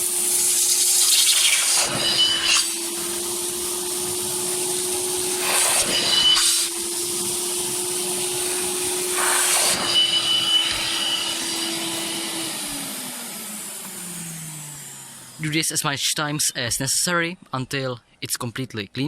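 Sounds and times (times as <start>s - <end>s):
wet vacuum cleaner running: 0.0s - 15.5s
suction hiss and whistle: 0.3s - 3.8s, 4.6s - 6.8s, 7.8s - 12.3s.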